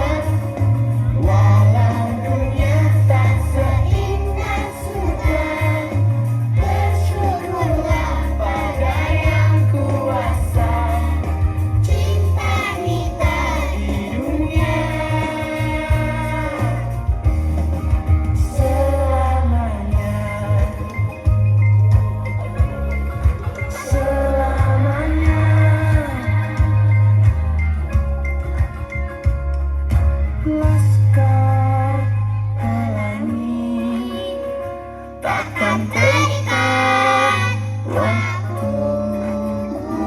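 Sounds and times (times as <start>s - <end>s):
children's choir singing: 0.0s - 17.0s, 35.2s - 40.0s
instrumental music with heavy bass: 0.0s - 40.0s.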